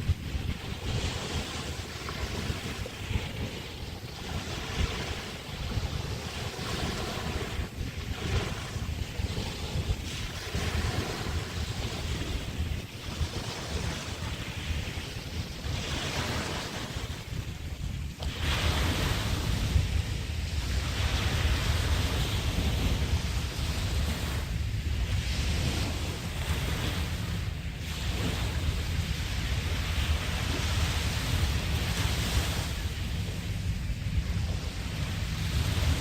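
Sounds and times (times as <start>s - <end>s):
waves washing onto beach: 0.0s - 36.0s
wind buffeting microphone: 0.0s - 36.0s.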